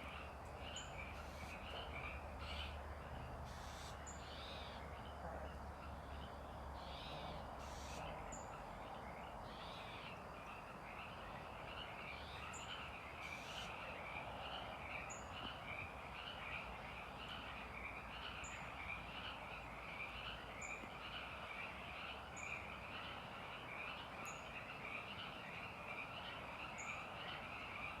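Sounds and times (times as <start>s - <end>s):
frogs calling: 0.0s - 28.0s.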